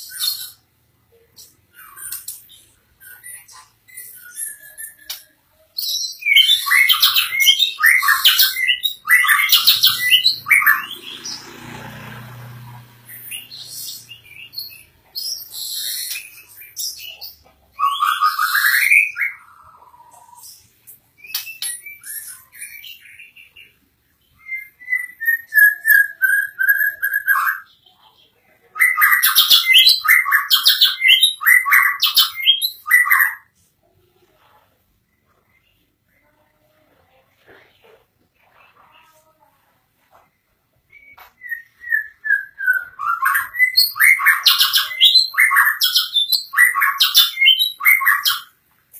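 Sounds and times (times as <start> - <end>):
songbird singing varied phrases: 1.3 - 11.7, 40.8 - 48.6.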